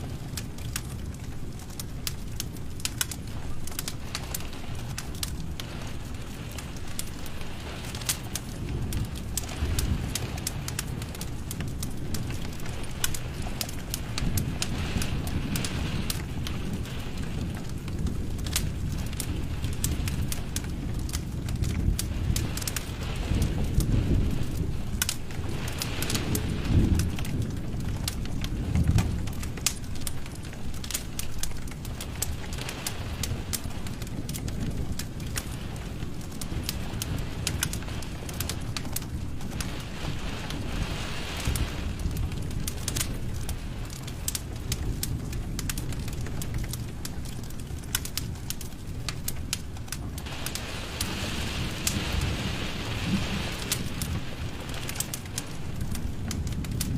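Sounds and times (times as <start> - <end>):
crackles and pops of burning wood: 0.0 - 56.9
low rumble of fire: 0.0 - 56.9
soft hiss: 50.2 - 55.9.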